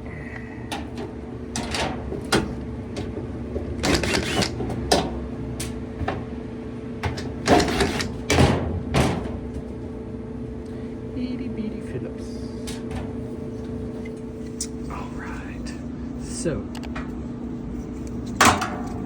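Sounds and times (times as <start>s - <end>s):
steady low hum: 0.0s - 19.0s
dryer door parts clicking and rattling: 0.7s - 6.4s, 7.0s - 9.8s, 12.6s - 14.0s, 18.3s - 19.0s.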